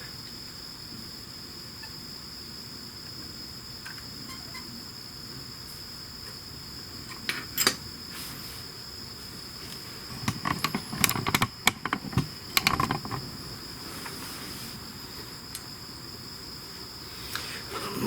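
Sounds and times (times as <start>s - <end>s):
crickets chirring: 0.0s - 18.0s
tools clicking and knocking: 10.1s - 13.2s.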